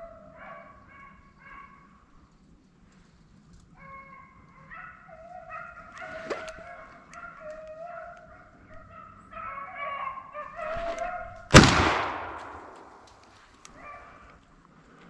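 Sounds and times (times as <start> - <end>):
hounds baying: 0.0 - 1.9, 3.8 - 11.4
loud gunshot with echo: 11.5 - 13.1.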